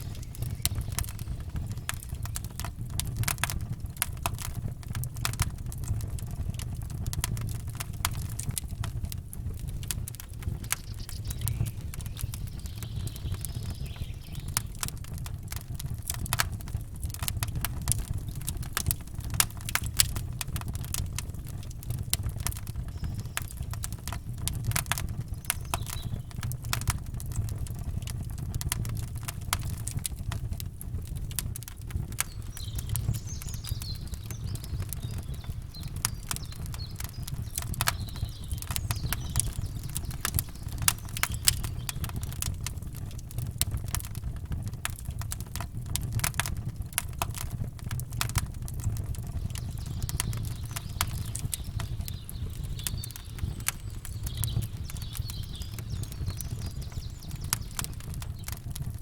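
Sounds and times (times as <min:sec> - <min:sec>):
faint birdsong: 0:00.0 - 0:03.7, 0:10.2 - 0:16.2, 0:20.8 - 0:27.9, 0:31.9 - 0:43.2, 0:48.3 - 0:59.0
campfire crackling and popping: 0:00.0 - 0:59.0.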